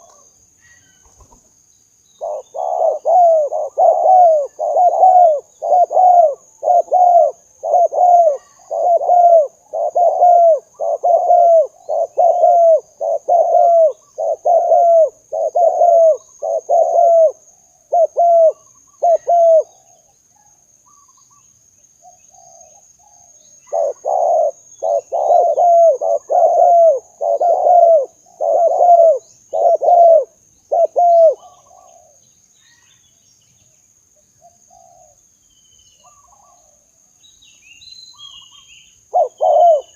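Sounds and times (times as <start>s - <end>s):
faint high-pitched hiss: 0.0s - 39.9s
dove cooing: 2.2s - 20.1s, 23.6s - 32.2s, 34.4s - 35.2s, 39.1s - 39.9s.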